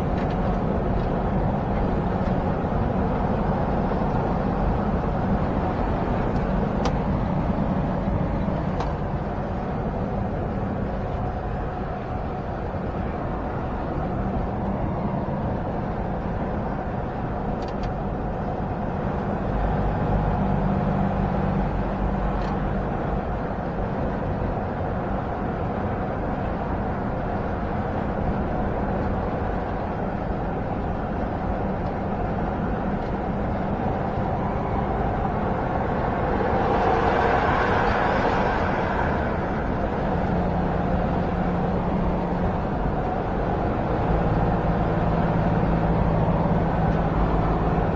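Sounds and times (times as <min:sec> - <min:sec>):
diesel engine hum: 0:00.0 - 0:47.9
road and wind noise: 0:00.0 - 0:47.9
rushing noise: 0:33.4 - 0:41.3.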